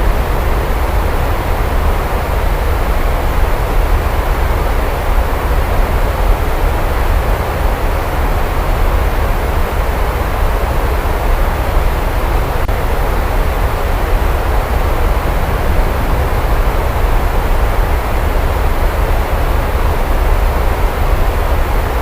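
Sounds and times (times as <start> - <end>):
heavy rain: 0.0 - 22.0
deep low rumble: 12.9 - 20.5.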